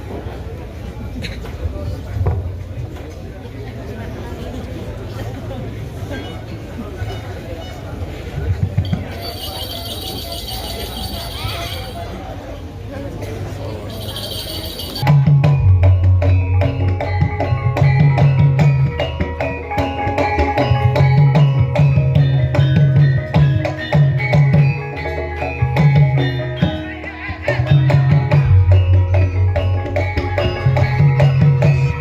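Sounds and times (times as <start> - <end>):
ringing metallophone notes: 8.8 - 12.4, 13.7 - 32.0.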